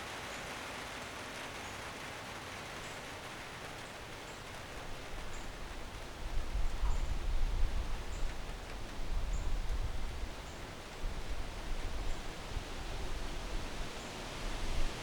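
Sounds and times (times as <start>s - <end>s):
wind rustling leaves: 0.0s - 15.0s
wind buffeting microphone: 4.9s - 15.0s.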